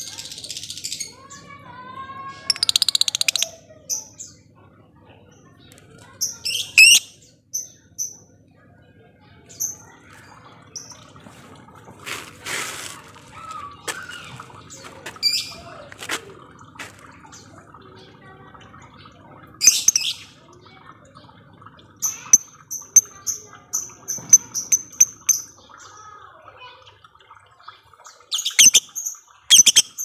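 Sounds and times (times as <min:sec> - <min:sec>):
birds chirping: 0:02.4 - 0:11.5, 0:13.3 - 0:26.1, 0:27.6 - 0:30.0.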